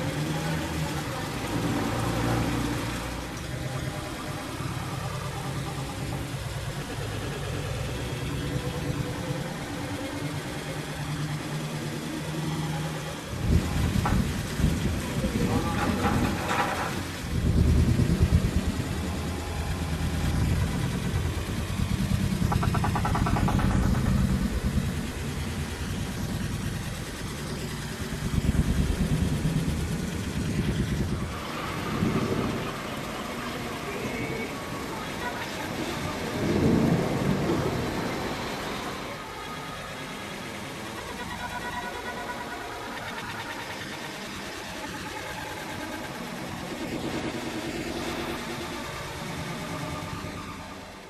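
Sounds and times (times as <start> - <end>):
motor vehicle engine humming: 0.0 - 51.0
rapid high-pitched pulsing: 0.0 - 51.0
thunder rumbling: 13.2 - 44.6.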